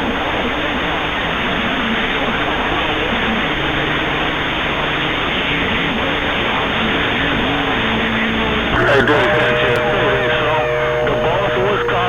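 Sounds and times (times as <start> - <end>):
radio static hiss: 8.8 - 10.2
wavering low tone: 8.8 - 10.2.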